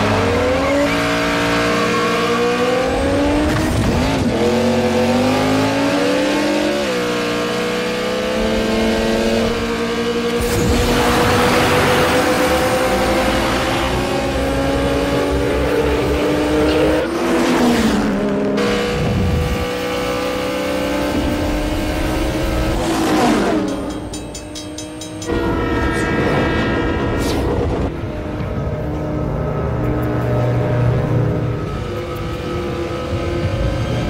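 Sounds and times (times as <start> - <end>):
race car engines revving: 0.0 - 34.0
locomotive horn: 25.1 - 32.9.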